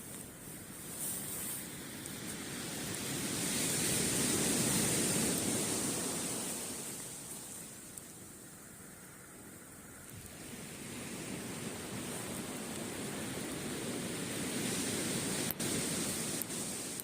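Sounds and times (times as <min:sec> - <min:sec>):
sea wave breaking on beach: 0:01.1 - 0:07.8, 0:10.2 - 0:17.0.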